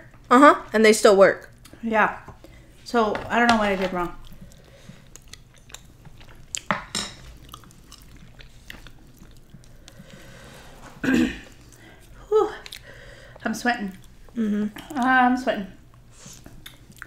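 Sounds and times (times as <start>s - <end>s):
chewing and mouth noises: 4.0s - 10.5s, 11.4s - 15.2s, 15.8s - 17.0s.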